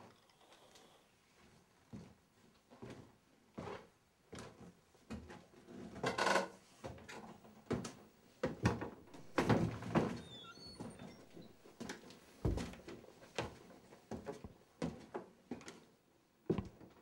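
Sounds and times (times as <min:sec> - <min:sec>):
wooden knocks and clunks: 0:08.6 - 0:11.5, 0:12.4 - 0:12.8
wooden creak: 0:09.1 - 0:11.6
faint high chirps: 0:09.3 - 0:11.6.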